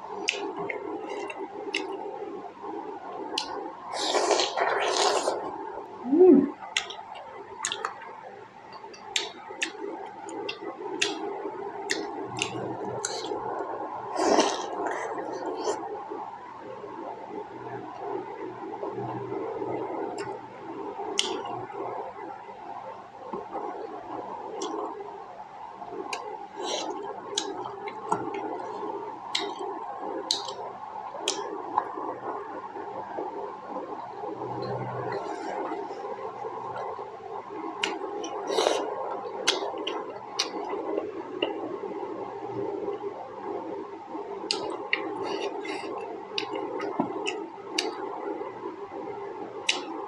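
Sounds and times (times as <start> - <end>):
steady background hum: 0.0 - 50.0
person humming: 6.0 - 6.6
breathing: 45.2 - 46.0.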